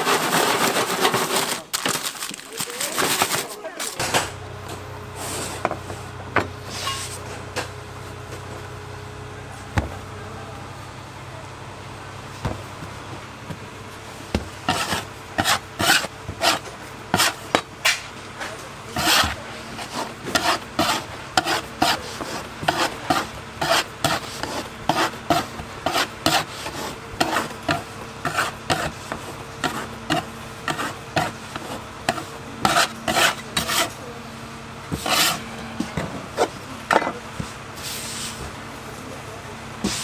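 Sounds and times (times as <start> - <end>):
dough rolled by hand: 12.3 - 34.0, 34.9 - 36.7.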